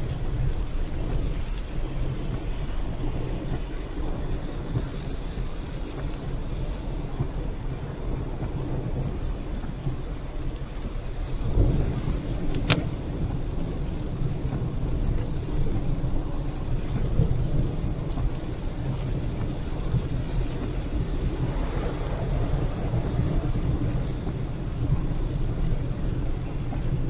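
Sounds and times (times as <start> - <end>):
road and rain rumble: 0.0 - 27.0.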